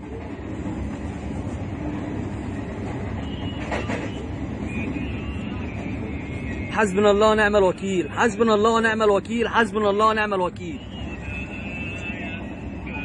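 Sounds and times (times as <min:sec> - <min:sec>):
train wheels rumbling on track: 0:00.0 - 0:07.7.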